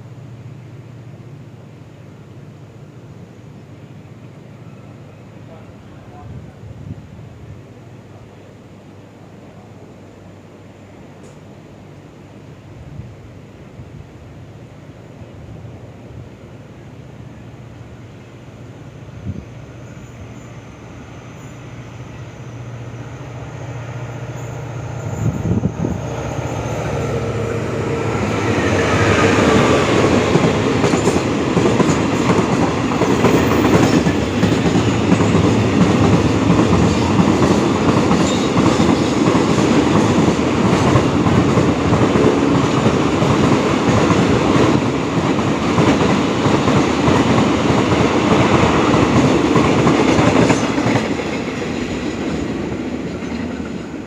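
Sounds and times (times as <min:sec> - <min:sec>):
locomotive engine hum: 0:14.3 - 0:38.7.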